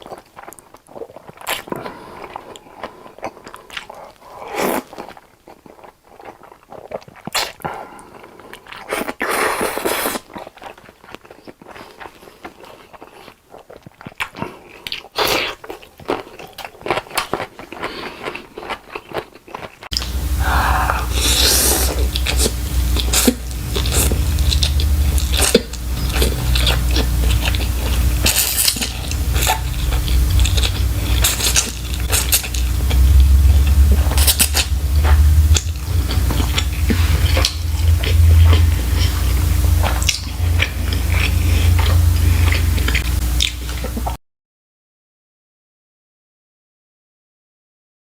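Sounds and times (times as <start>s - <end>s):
person chewing food: 0.0s - 44.2s
low hum and rumble: 19.9s - 44.2s.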